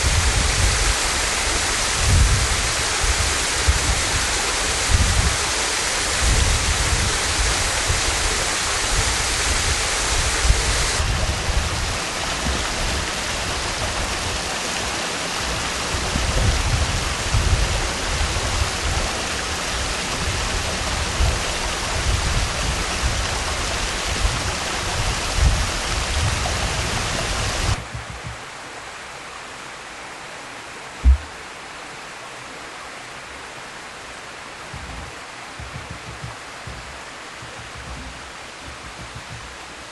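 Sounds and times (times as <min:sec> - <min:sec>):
waterfall rushing: 0:00.0 - 0:39.9
short low thump: 0:31.0 - 0:31.4.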